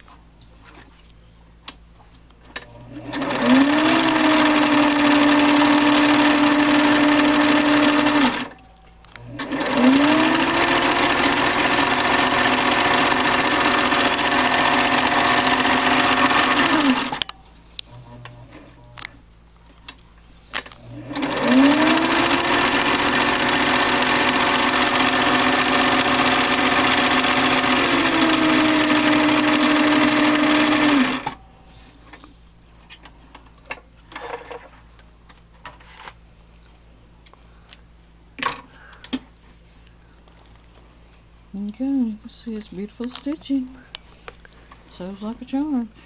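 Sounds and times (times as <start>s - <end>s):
sewing machine running: 2.7s - 8.5s, 9.3s - 17.3s, 20.8s - 31.4s.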